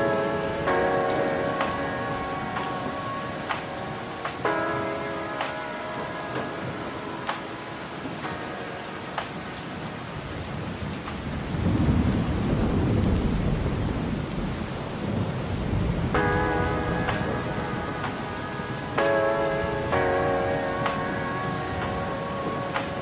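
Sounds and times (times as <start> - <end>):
steady rain falling: 0.0 - 23.0
low rumble of thunder: 10.2 - 18.8.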